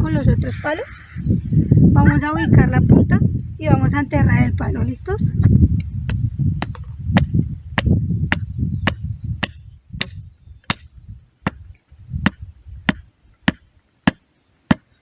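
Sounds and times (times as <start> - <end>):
hammering stake into ground: 5.8 - 15.0.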